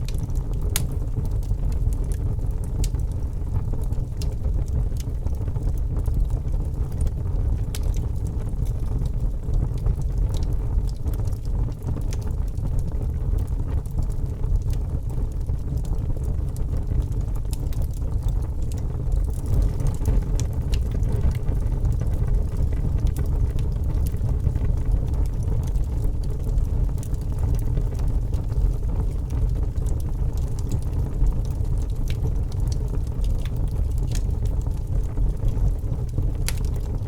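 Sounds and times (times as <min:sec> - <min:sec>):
logs crackling and popping: 0:00.0 - 0:37.0
low rumble of flames: 0:00.0 - 0:37.0.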